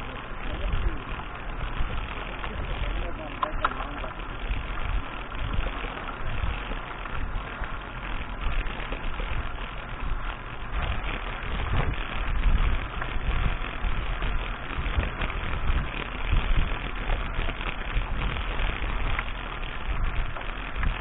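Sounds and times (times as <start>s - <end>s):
mountain bike rattling on dirt: 0.0s - 21.0s
wind rumble on microphone: 0.0s - 21.0s.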